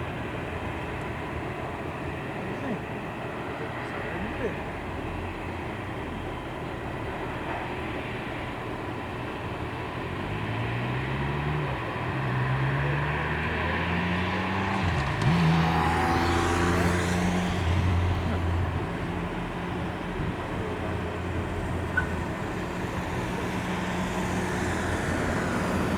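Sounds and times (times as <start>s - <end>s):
steady traffic noise: 0.0s - 25.9s
vehicle engine accelerating past: 10.2s - 25.9s.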